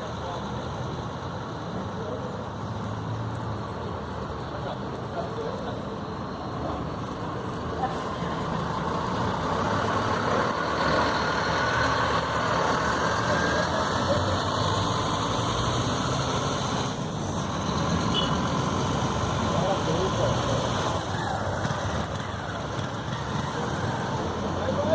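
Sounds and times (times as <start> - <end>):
diesel bus engine running: 6.0 - 24.9.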